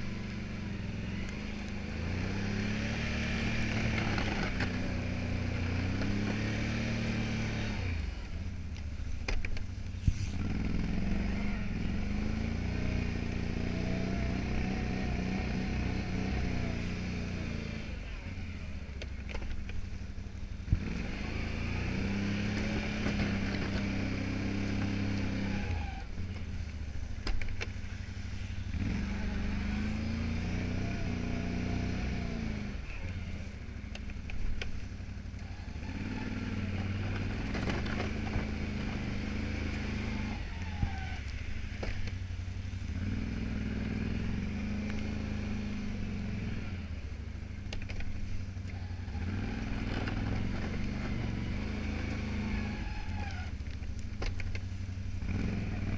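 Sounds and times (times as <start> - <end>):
atv engine plowing snow: 0.0 - 55.9.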